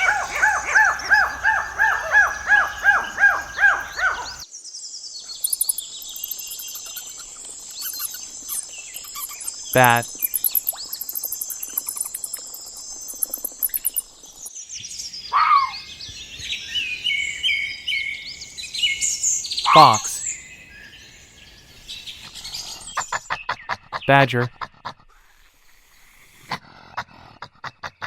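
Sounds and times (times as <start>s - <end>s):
bats calling: 0.0s - 4.4s, 5.4s - 14.5s.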